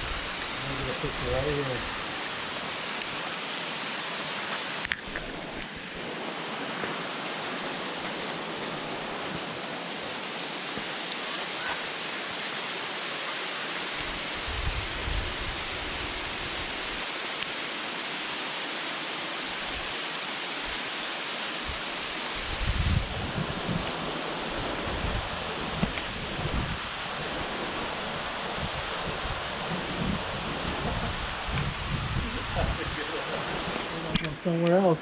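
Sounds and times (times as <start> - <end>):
waterfall rushing: 0.0 - 35.0
wind buffeting microphone: 14.4 - 16.8, 22.5 - 24.0, 24.6 - 33.7.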